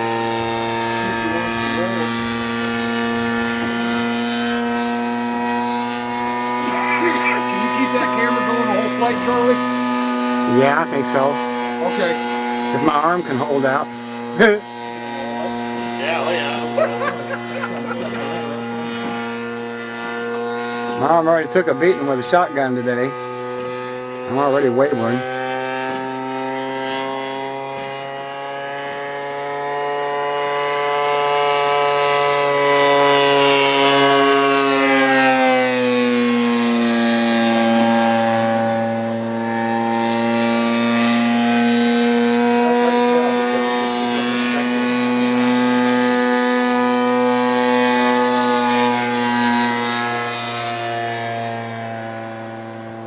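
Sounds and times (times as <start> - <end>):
model airplane engine droning: 0.0 - 53.0.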